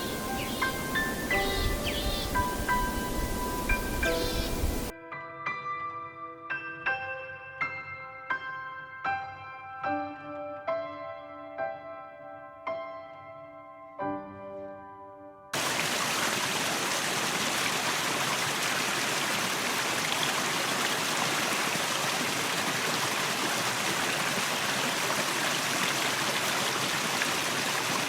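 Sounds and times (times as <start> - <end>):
running water hiss: 0.0 - 4.9, 15.6 - 28.0
piano music: 0.0 - 15.5.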